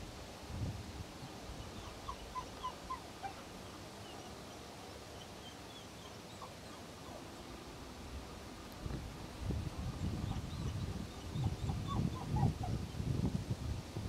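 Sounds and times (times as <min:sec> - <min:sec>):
light outdoor hiss: 0:00.0 - 0:14.0
faint bird calls: 0:01.2 - 0:07.5, 0:10.0 - 0:13.0.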